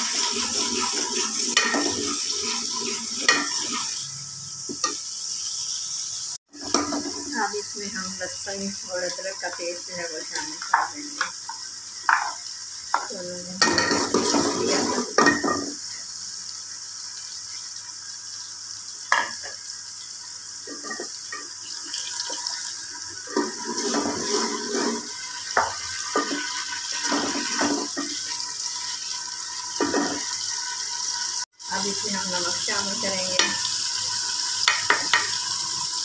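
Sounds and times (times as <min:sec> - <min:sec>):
onions sizzling in hot oil: 0:00.0 - 0:36.0
ladle scraping a metal pot: 0:23.3 - 0:25.3.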